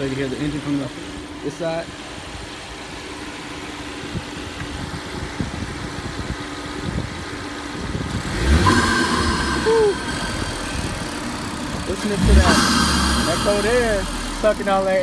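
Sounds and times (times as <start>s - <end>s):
car engine idling and revving: 0.0s - 15.0s
intake sucking air: 8.3s - 14.7s.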